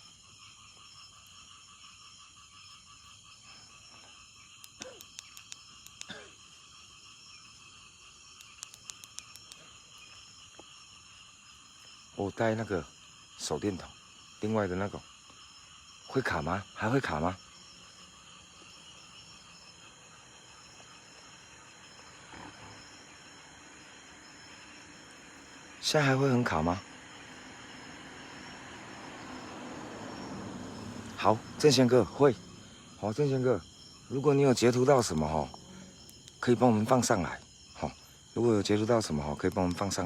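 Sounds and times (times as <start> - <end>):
crickets chirring: 0.0 - 40.0
insects and frogs trilling: 0.0 - 40.0
sharp clicks: 4.6 - 6.2, 8.4 - 9.6, 36.0 - 36.4.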